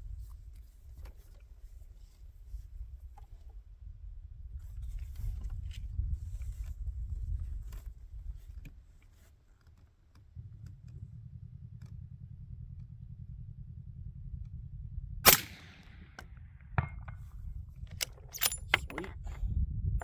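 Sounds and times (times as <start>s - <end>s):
low uneven rumble: 10.0s - 20.0s
suppressed rifle shot: 15.2s - 17.4s.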